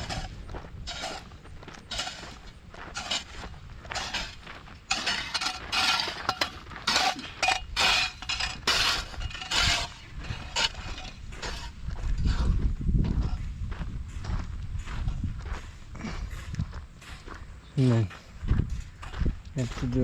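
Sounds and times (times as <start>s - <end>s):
hand tool scraping dirt: 0.0s - 13.5s.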